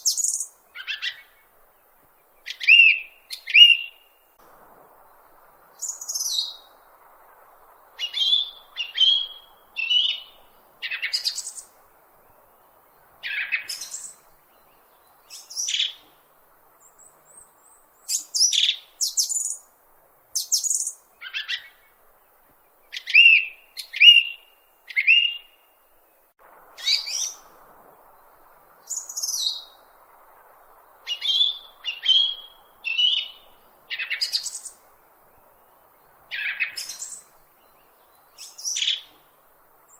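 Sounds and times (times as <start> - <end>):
bird chirping: 0.0 - 4.4, 5.0 - 16.2, 16.8 - 19.7, 20.4 - 25.7, 26.8 - 39.9.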